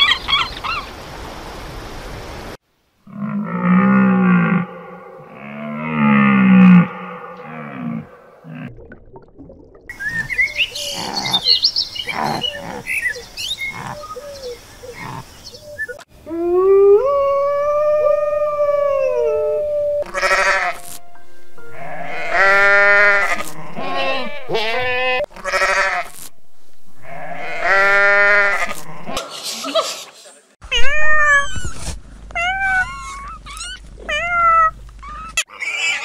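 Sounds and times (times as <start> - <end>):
wolf howling: 3.7 - 8.6, 16.2 - 20.8
sheep bleating: 20.0 - 20.9, 21.8 - 26.1, 27.0 - 29.2.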